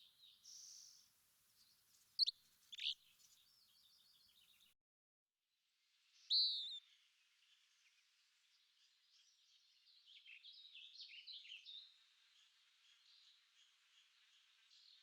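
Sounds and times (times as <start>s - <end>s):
quick bird chirping: 2.2s - 3.0s.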